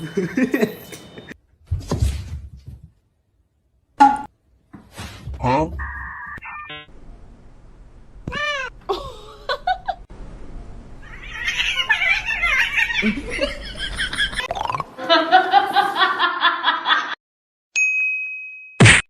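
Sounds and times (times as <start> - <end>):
people laughing: 0.0 - 1.4, 12.8 - 17.2.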